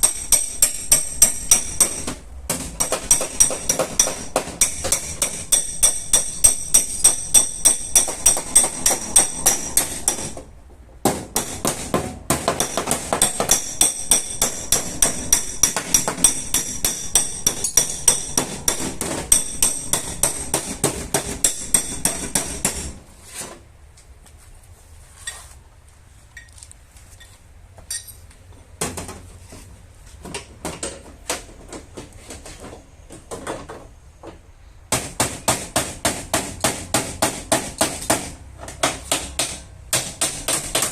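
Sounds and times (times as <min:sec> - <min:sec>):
hammer striking sheet metal: 0:00.0 - 0:10.4, 0:11.1 - 0:23.0.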